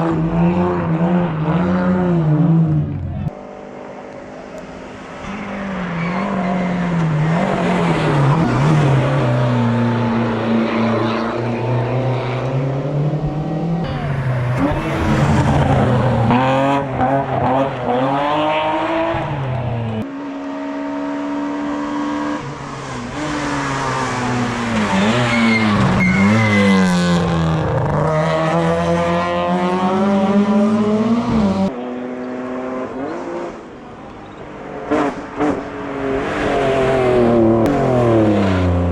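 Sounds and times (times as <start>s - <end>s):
race car engines revving: 0.0s - 38.9s.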